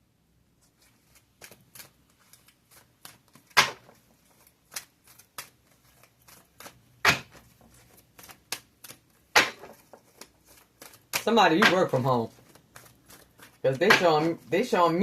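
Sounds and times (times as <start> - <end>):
cards shuffling: 0.6 - 15.0
loud card slaps: 3.0 - 3.9, 7.0 - 7.4, 9.3 - 9.8, 10.8 - 12.1, 13.7 - 14.3.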